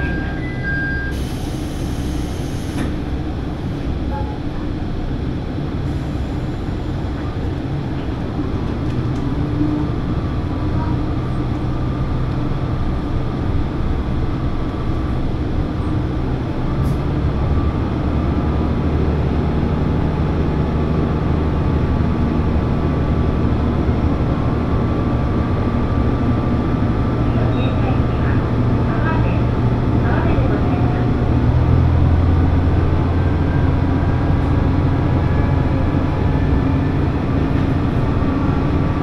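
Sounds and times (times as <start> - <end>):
railcar engine drone: 0.0 - 39.0.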